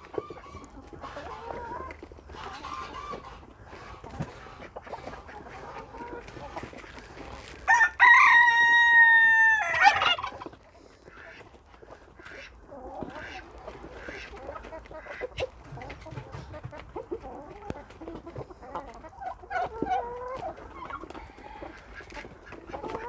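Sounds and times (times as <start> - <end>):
chickens clucking softly: 0.0 - 23.0
rooster crowing: 7.7 - 10.1.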